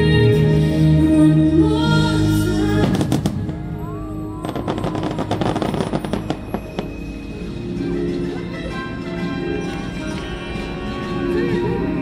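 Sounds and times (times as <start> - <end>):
show music: 0.6 - 12.0
fireworks crackling: 2.8 - 7.6
fireworks whistling: 2.8 - 7.7.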